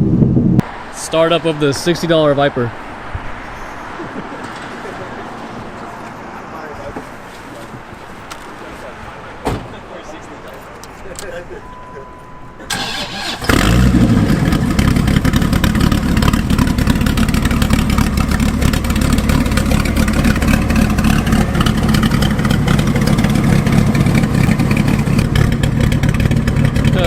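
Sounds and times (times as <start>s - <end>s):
car engine starting and running: 12.1s - 27.0s.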